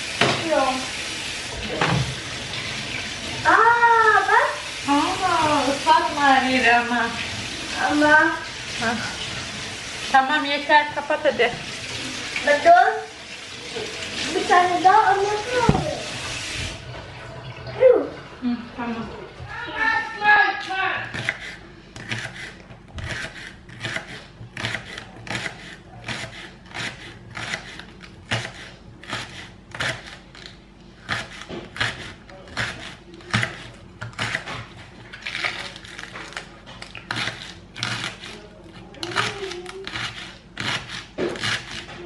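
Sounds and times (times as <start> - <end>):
knife chopping on cutting board: 21.1 - 30.3, 31.0 - 34.8, 39.1 - 42.0.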